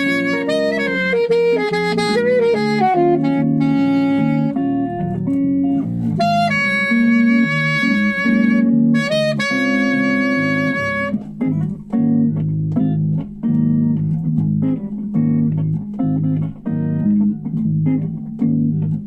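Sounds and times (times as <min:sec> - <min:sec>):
saxophone melody: 0:00.0 - 0:13.1
bass: 0:00.0 - 0:19.0
guitar: 0:00.0 - 0:19.0.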